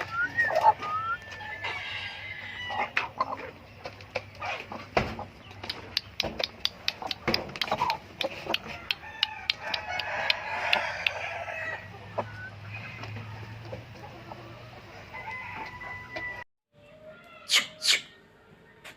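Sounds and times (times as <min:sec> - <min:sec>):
chickens clucking: 0:00.0 - 0:16.4
rooster crowing: 0:01.1 - 0:03.0, 0:08.8 - 0:11.9, 0:15.1 - 0:16.4
sharp clicks: 0:05.6 - 0:10.8.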